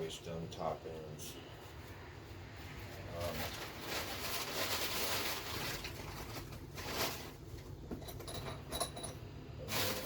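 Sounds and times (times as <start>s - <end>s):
objects knocking and clinking: 7.9s - 9.3s.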